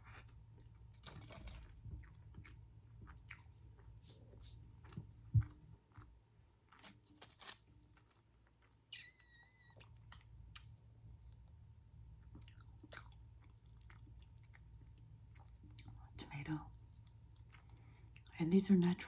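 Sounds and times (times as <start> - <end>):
chewing and crunching food: 0.0 - 19.0
high-pitched squeak: 9.0 - 9.8.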